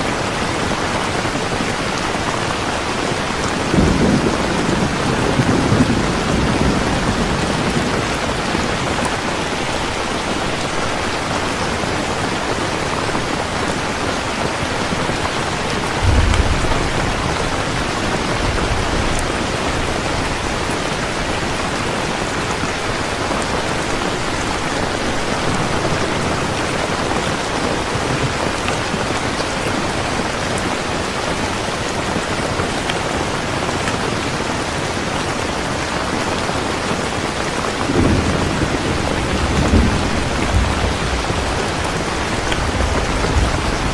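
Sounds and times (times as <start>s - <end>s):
heavy rain: 0.0s - 43.9s
thunder rumble: 3.6s - 11.0s, 15.5s - 27.4s, 37.8s - 43.9s.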